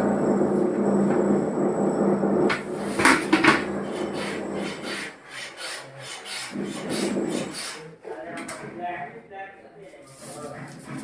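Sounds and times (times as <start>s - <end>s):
rasping rubbing on hard surface: 2.5s - 9.1s, 9.9s - 11.0s.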